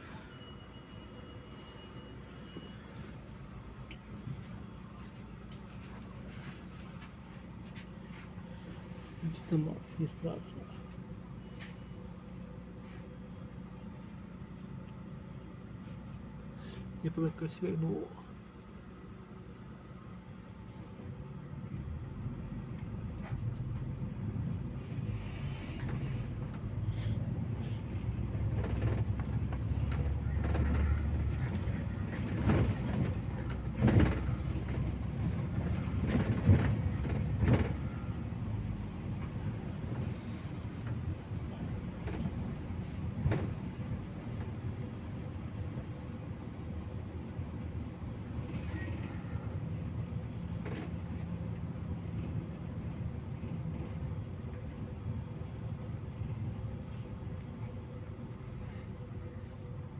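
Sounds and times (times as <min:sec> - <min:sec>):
bus engine and road rumble: 0:00.0 - 0:59.9
bus body knocks and rattles: 0:27.9 - 0:38.2, 0:41.8 - 0:44.6, 0:50.4 - 0:54.8.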